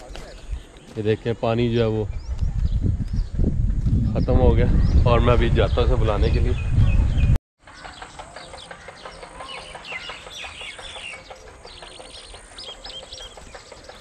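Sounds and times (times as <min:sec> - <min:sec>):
birds chirping and calling: 0:00.0 - 0:14.0.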